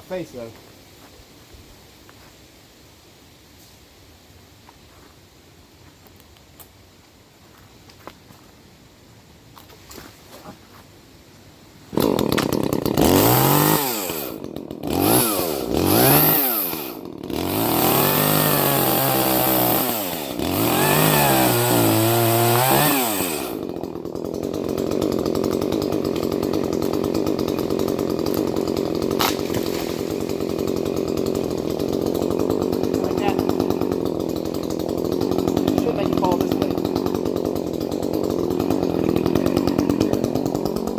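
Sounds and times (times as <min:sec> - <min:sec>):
chainsaw revving and idling: 0:11.9 - 0:40.9.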